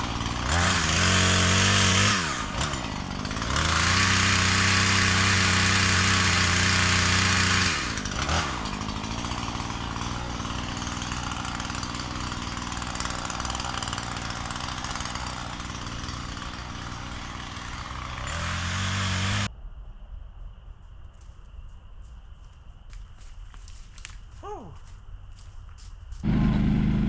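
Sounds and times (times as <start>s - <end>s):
chainsaw engine revving: 0.0s - 19.5s, 26.2s - 27.0s.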